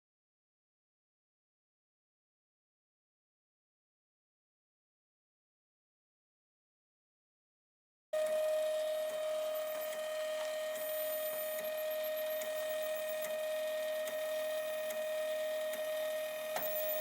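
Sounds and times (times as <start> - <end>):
stepper motors whining: 8.2 - 17.0.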